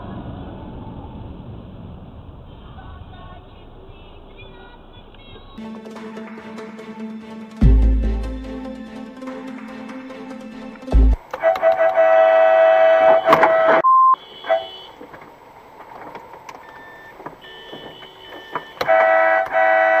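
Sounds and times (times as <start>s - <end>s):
car horn blasts: 11.4s - 15.0s, 17.4s - 20.0s
short car horn beep: 11.4s - 15.0s, 17.4s - 20.0s.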